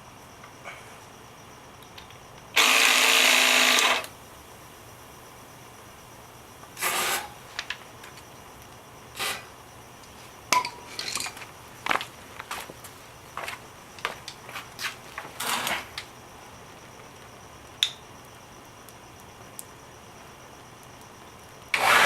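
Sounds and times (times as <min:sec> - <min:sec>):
small motor whirring: 0:02.6 - 0:04.1
short hissing bursts: 0:21.7 - 0:22.0.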